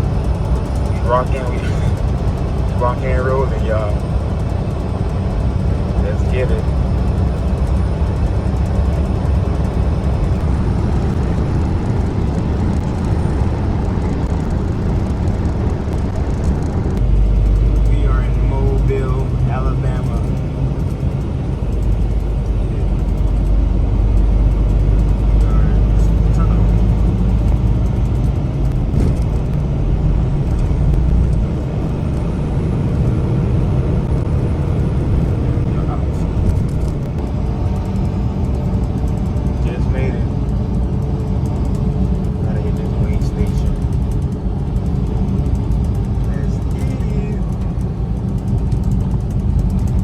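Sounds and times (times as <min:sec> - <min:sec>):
truck engine and road noise: 0:00.0 - 0:50.0.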